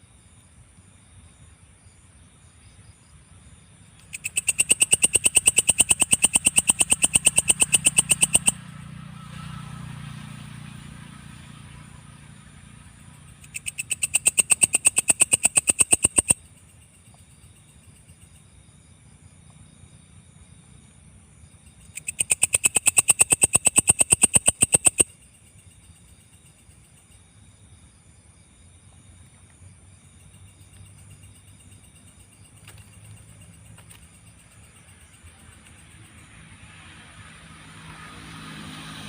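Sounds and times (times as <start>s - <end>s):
katydid clicking chirps: 4.0s - 8.6s, 13.4s - 17.2s, 21.7s - 25.2s.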